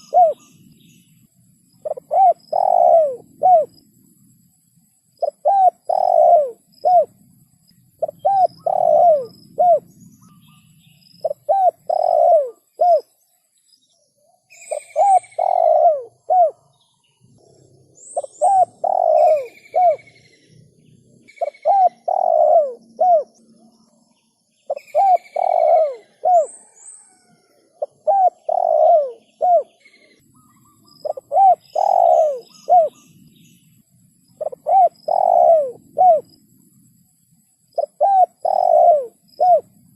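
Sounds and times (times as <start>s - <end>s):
dove cooing: 0.0s - 0.6s, 1.8s - 3.8s, 5.2s - 7.2s, 8.0s - 10.5s, 11.2s - 13.1s, 14.6s - 16.7s, 17.4s - 23.4s, 24.7s - 33.1s, 34.3s - 36.4s, 37.7s - 39.9s
higher bird chirps: 0.0s - 3.8s, 7.7s - 36.5s, 37.7s - 39.7s.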